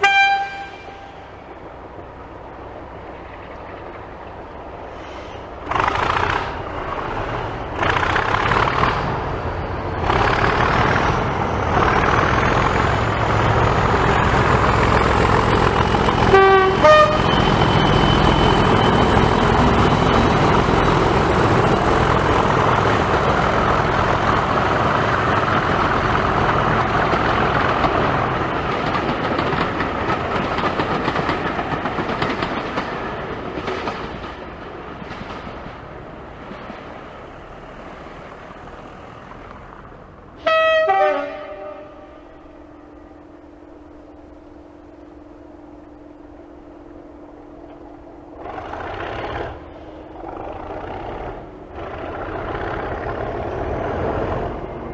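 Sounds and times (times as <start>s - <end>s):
two-note locomotive horn: 0.0s - 1.4s, 16.2s - 17.6s, 40.4s - 43.2s
diesel locomotive running: 0.0s - 54.9s.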